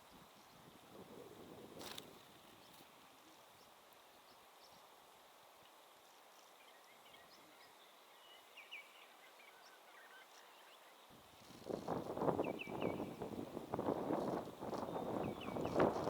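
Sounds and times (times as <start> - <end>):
bird chirps and calls: 14.7 - 16.0.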